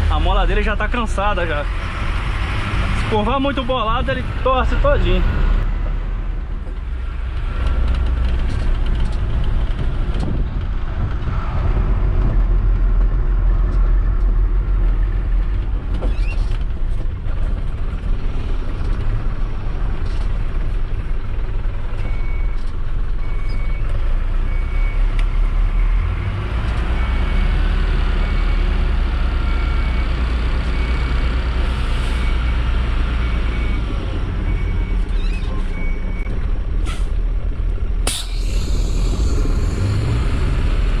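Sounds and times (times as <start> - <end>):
truck diesel engine running: 0.0 - 11.2, 26.3 - 41.0
reversing beeper: 26.9 - 36.3.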